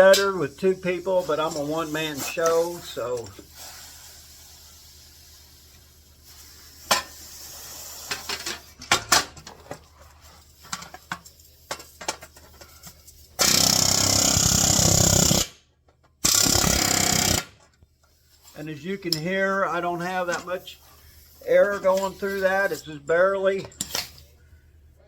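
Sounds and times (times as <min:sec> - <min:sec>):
pneumatic air hammer rattling: 0:00.0 - 0:04.4, 0:10.5 - 0:17.7.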